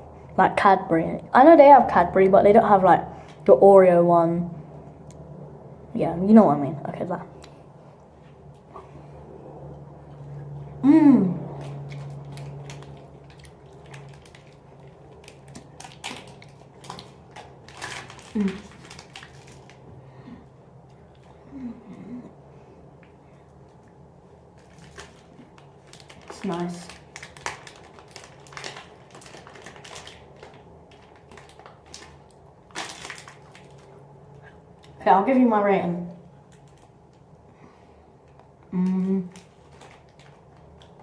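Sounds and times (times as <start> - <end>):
person chewing candy: 9.7 - 35.0
person humming: 10.8 - 11.5, 21.5 - 22.3, 38.7 - 39.4
wet chewing clicks: 11.4 - 17.6.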